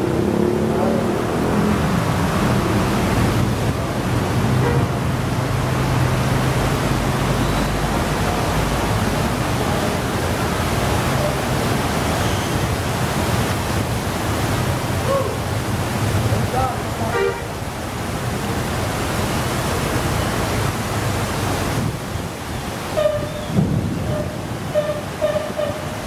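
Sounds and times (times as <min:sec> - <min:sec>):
vehicle engine hum passing: 0:00.0 - 0:15.0
heavy rain and wind: 0:00.0 - 0:26.0.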